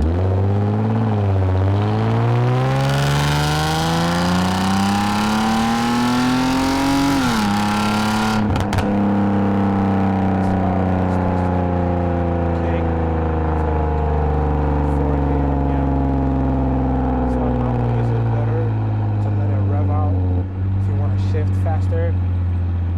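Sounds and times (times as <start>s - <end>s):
car engine accelerating: 0.0s - 22.9s.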